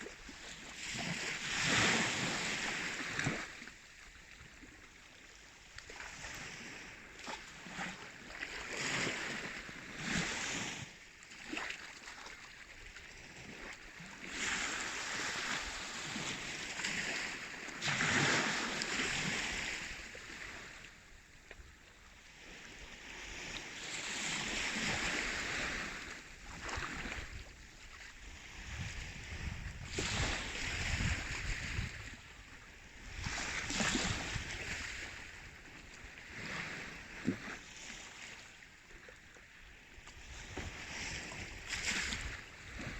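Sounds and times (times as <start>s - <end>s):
sea waves washing in: 0.0s - 3.6s, 14.3s - 21.0s, 22.2s - 38.6s.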